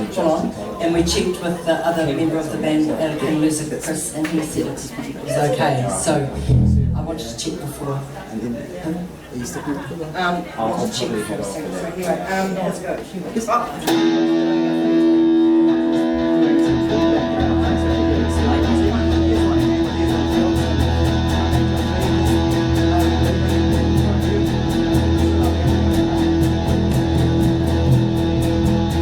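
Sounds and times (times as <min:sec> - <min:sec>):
electric guitar: 0:06.4 - 0:07.1, 0:13.9 - 0:29.0
bass line: 0:06.4 - 0:07.4, 0:15.0 - 0:29.0.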